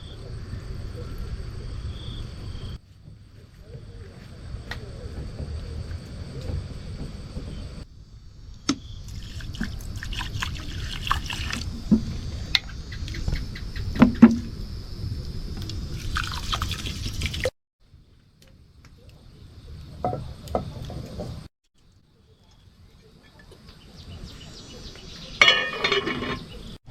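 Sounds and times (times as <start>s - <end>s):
water splashing and dripping: 8.7s - 14.4s, 15.6s - 17.6s
knocks and clinks: 25.4s - 26.6s.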